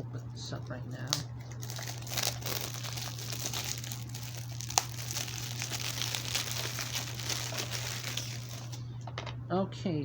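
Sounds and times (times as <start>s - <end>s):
plastic shrink-wrap crinkling: 0.9s - 8.8s.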